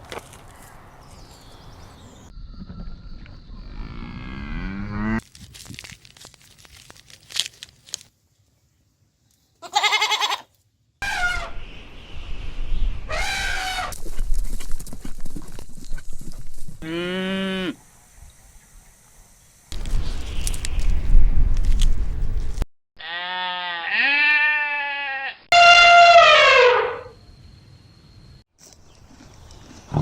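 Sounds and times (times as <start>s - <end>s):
goats bleating: 9.6s - 10.5s, 23.0s - 25.4s.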